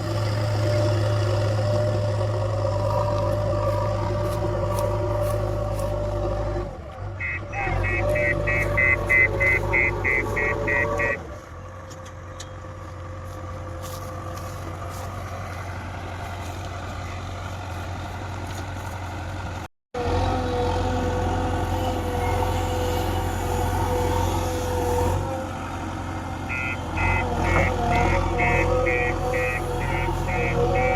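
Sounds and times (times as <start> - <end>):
diesel engine running: 0.0 - 30.9
reversing alarm beeping: 7.2 - 11.2, 26.5 - 30.9.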